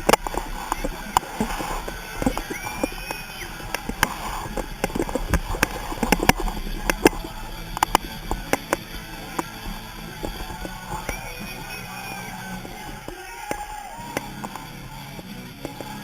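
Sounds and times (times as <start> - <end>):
sharp taps and knocks: 0.0 - 11.7.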